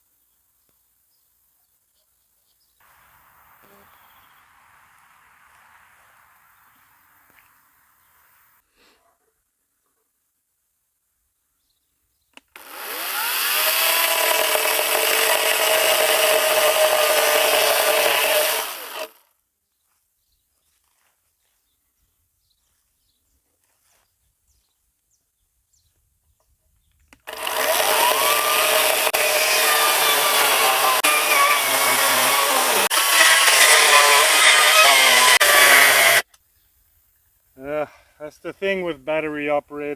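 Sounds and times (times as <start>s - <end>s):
cordless saw cutting wood: 12.5s - 19.3s, 27.2s - 36.2s.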